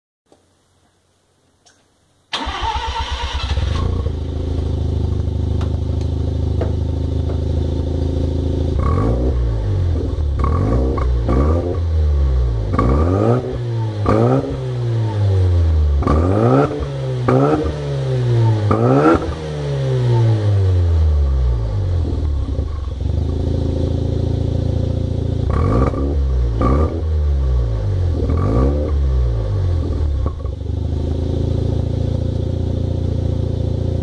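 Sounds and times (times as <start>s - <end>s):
rotary engine idling and revving: 2.5s - 34.0s.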